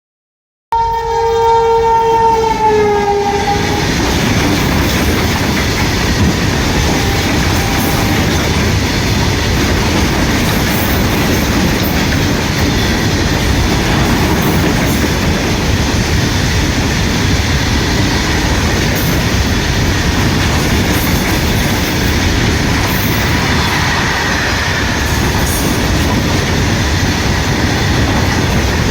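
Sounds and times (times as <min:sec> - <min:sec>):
train horn: 0:00.7 - 0:04.1, 0:06.6 - 0:08.5, 0:23.0 - 0:26.0
freight wagons rumbling and clacking: 0:03.8 - 0:24.0, 0:25.0 - 0:28.9.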